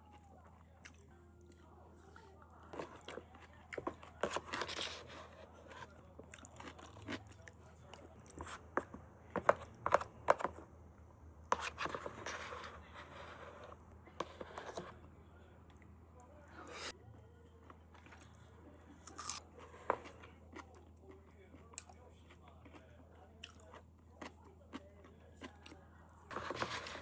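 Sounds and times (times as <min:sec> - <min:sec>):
person chewing crunchy food: 0:02.7 - 0:10.6, 0:18.0 - 0:27.0.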